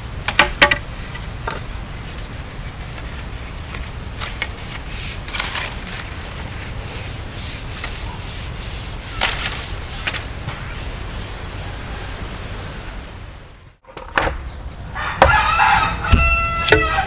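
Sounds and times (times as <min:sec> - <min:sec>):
wood scraped by hand: 0:02.6 - 0:12.4.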